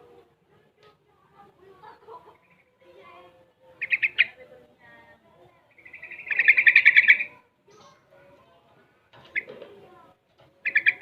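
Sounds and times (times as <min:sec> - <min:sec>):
bird singing quick notes and trills: 0:03.7 - 0:04.4, 0:05.7 - 0:08.0, 0:09.2 - 0:09.6, 0:10.6 - 0:11.0.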